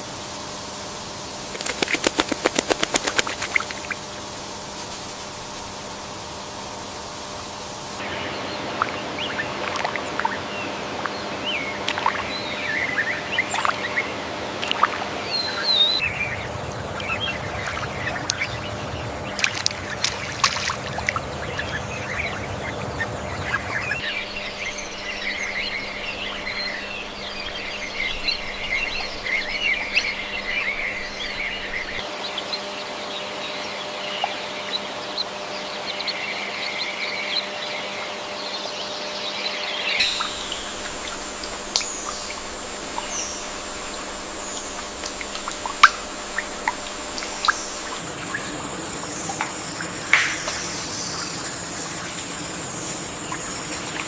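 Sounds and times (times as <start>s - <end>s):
faint steady hum: 0.0s - 54.0s
birds chirping and trilling: 1.5s - 54.0s
running water: 16.6s - 32.0s, 40.0s - 54.0s.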